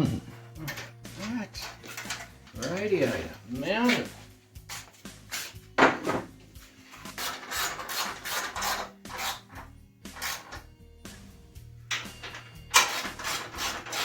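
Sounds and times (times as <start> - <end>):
rasping scraping strokes: 6.7 - 10.6, 12.7 - 14.0.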